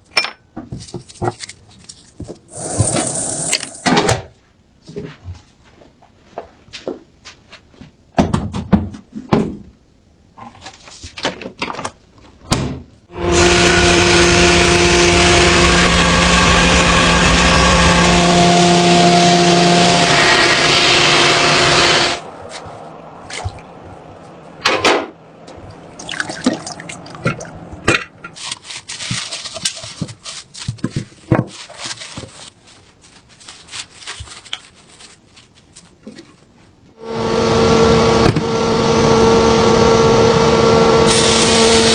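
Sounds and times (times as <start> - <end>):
water running: 25.5 - 27.8.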